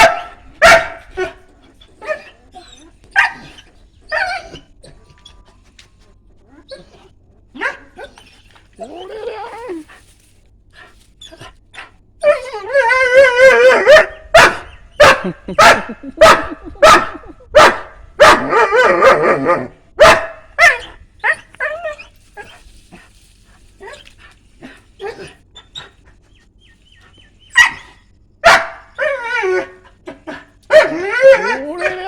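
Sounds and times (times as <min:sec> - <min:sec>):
dog barking sharply: 0:00.0 - 0:01.0, 0:13.9 - 0:18.5, 0:20.0 - 0:20.8, 0:27.6 - 0:28.9
dog wavering cry: 0:00.0 - 0:05.0, 0:07.6 - 0:09.9, 0:12.2 - 0:15.1, 0:20.6 - 0:22.6, 0:25.0 - 0:32.0.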